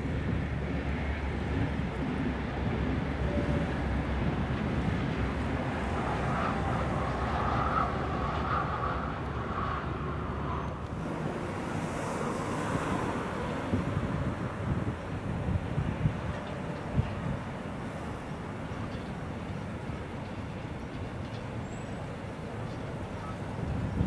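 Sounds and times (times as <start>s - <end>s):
wind noise on microphone: 0.0s - 18.1s, 23.0s - 24.0s
distant electric train rumble: 0.0s - 24.0s
distant freight train: 0.0s - 24.0s.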